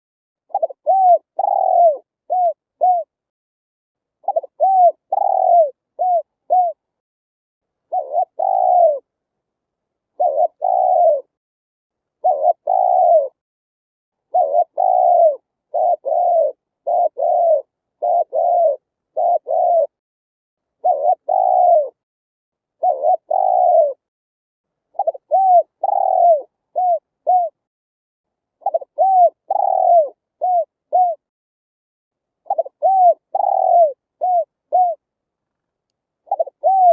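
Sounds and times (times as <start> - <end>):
dove cooing: 0.5 - 3.2, 4.2 - 6.8, 7.9 - 9.1, 10.2 - 11.4, 12.2 - 13.4, 14.3 - 20.0, 20.8 - 22.0, 22.8 - 24.1, 24.9 - 27.6, 28.6 - 31.3, 32.4 - 35.0, 36.2 - 36.9.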